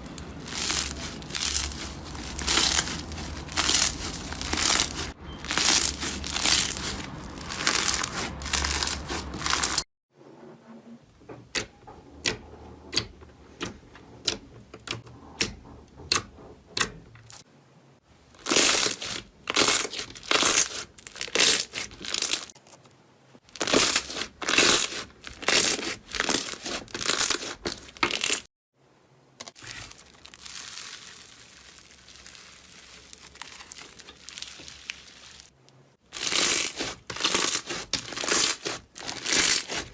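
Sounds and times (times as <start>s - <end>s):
slime crackling: 0.0s - 9.8s, 18.4s - 22.6s, 23.4s - 28.5s, 29.4s - 39.9s
slime squishing: 0.0s - 9.8s, 18.4s - 22.6s, 23.4s - 28.5s, 29.4s - 39.9s.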